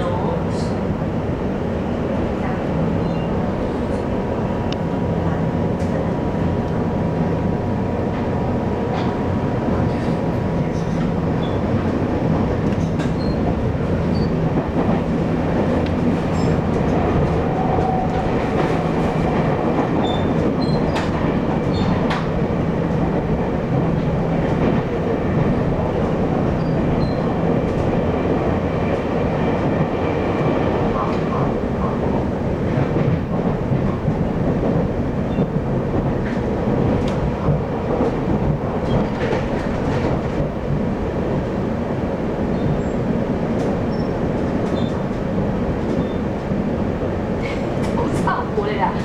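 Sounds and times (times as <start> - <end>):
train wheels rumbling on rail: 0.0 - 49.0.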